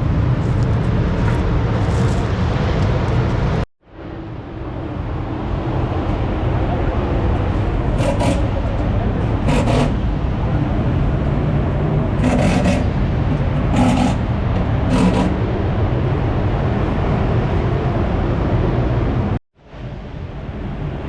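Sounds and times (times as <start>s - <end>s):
racing engines rumbling: 0.0s - 19.4s
loud bursts of engine noise: 4.2s - 19.3s.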